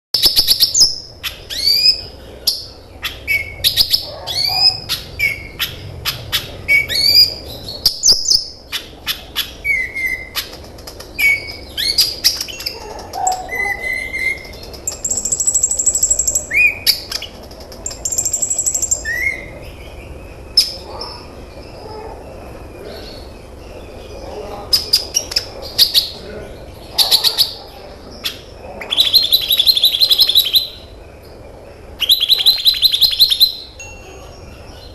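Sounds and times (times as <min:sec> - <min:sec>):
songbird singing: 0:00.2 - 0:34.9.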